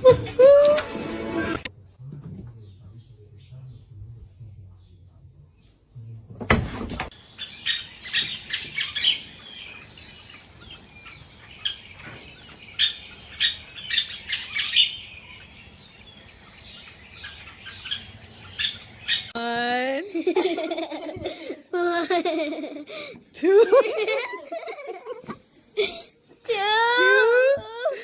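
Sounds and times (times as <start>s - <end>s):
small birds chirping: 1.8s - 6.2s, 7.1s - 21.5s.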